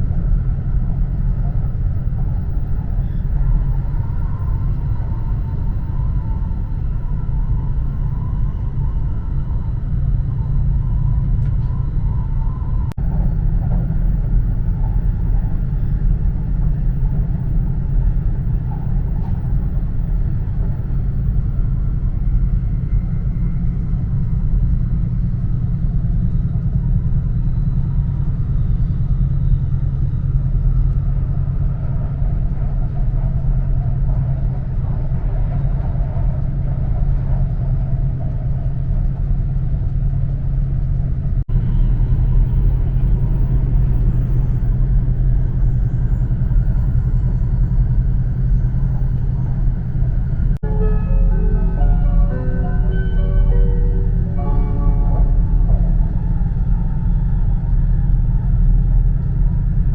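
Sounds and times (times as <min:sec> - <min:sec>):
faint hum: 0:00.0 - 0:59.9
train cabin low rumble: 0:00.0 - 0:59.9.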